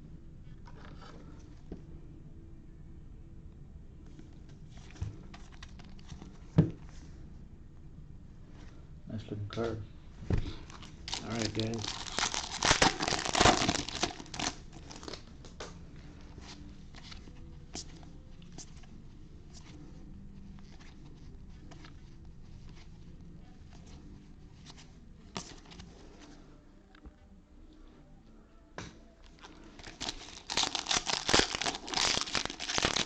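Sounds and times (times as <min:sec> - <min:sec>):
wrapper tearing and crinkling: 0:10.6 - 0:15.3, 0:29.4 - 0:33.0
cards clicking and rustling: 0:10.6 - 0:15.7, 0:29.3 - 0:33.0.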